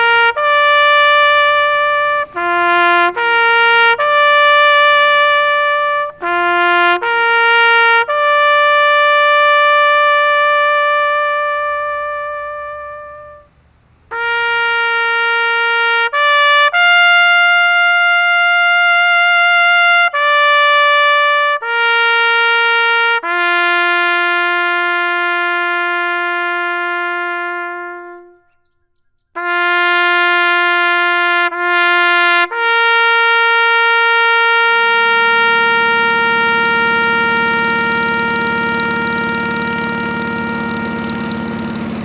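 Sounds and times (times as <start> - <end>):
low engine rumble: 0.0 - 14.4, 34.7 - 42.0
solo trumpet melody: 0.0 - 42.0.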